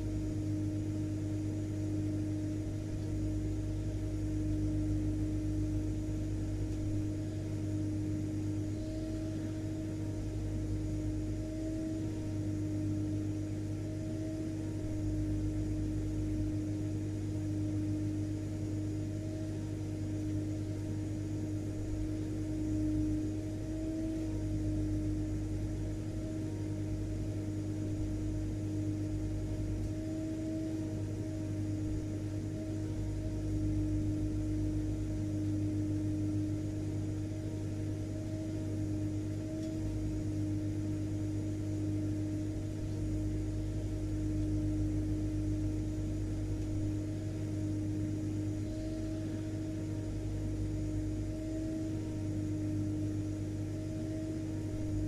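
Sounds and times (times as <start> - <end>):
vacuum cleaner running: 0.0 - 13.3.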